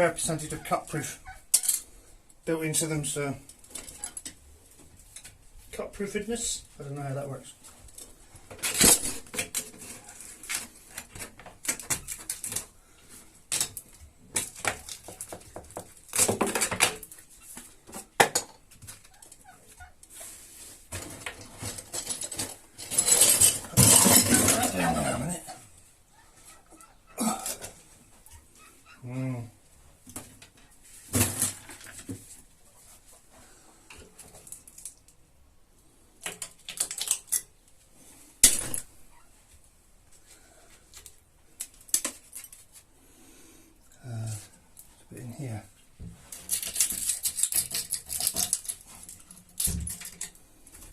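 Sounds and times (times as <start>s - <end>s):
scraping rattle: 21.5s - 25.1s
broken glass clinking and scraping: 21.6s - 25.6s, 46.4s - 50.3s.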